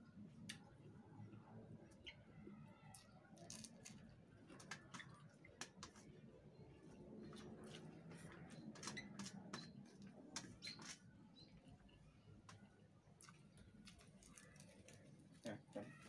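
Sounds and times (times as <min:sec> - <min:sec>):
chewing food: 0:12.5 - 0:15.8.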